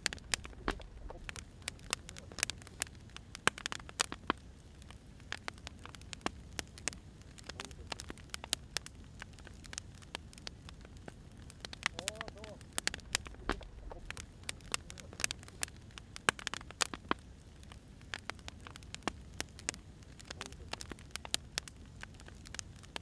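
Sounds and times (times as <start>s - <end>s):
firewood crackling and popping: 0.0s - 23.0s
low steady rumble: 0.0s - 23.0s.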